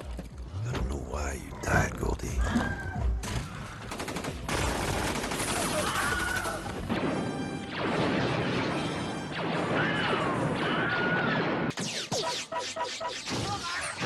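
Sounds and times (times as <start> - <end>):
barrage of gunfire: 3.9 - 12.2.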